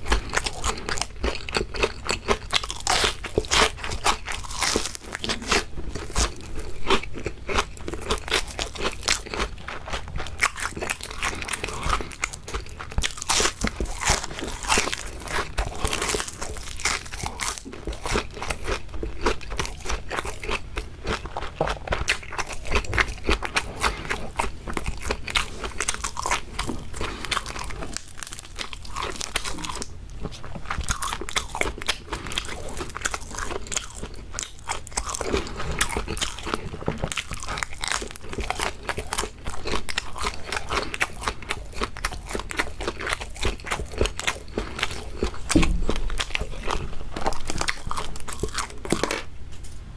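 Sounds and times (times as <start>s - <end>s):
crunching and chewing fried food: 0.0s - 49.8s.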